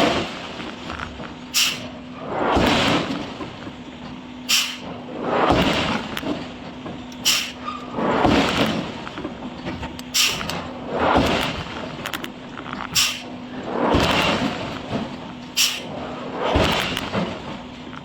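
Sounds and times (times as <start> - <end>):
sharp air hiss: 1.5 - 2.0, 4.5 - 4.9, 7.2 - 7.6, 10.1 - 10.5, 13.0 - 13.3, 15.6 - 16.0.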